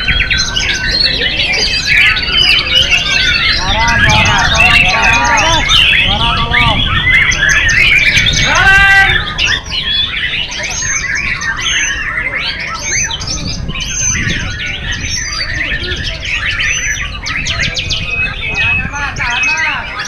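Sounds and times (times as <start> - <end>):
birds singing whistles and trills: 0.0 - 20.0
loud harsh bird call: 0.0 - 20.0.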